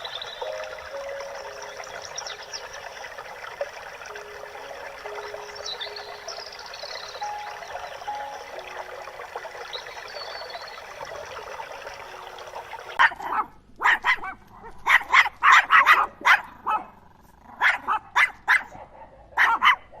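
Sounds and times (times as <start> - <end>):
dog barking: 13.0 - 20.0.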